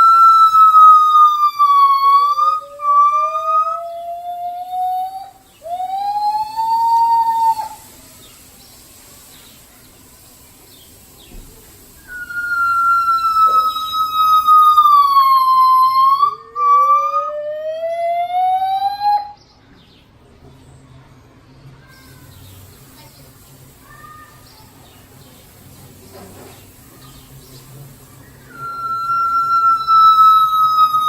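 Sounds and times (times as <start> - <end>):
gibbons hooting: 0.0 - 7.9, 12.1 - 19.4, 28.4 - 31.0.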